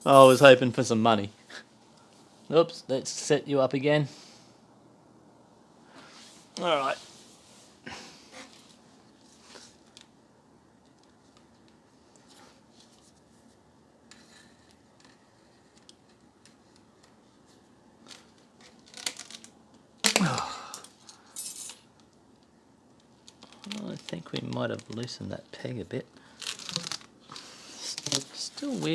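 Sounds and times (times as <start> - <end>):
wire hook clicks and rustles: 0.0 - 0.5, 18.7 - 21.8.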